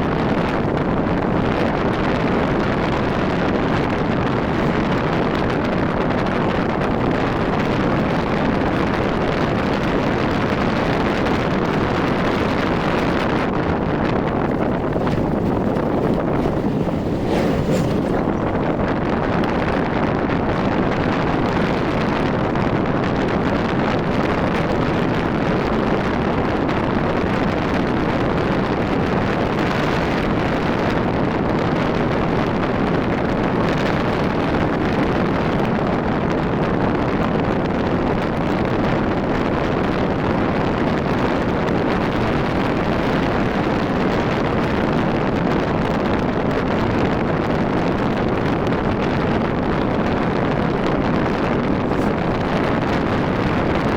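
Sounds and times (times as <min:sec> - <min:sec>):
road noise: 0:00.0 - 0:35.9, 0:40.6 - 0:53.9
wind buffeting microphone: 0:00.0 - 0:53.9
motorcycle engine: 0:12.8 - 0:19.9.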